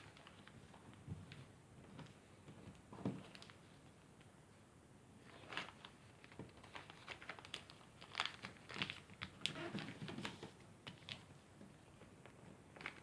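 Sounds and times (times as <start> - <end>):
paper rustling and crackling: 5.2 - 13.0.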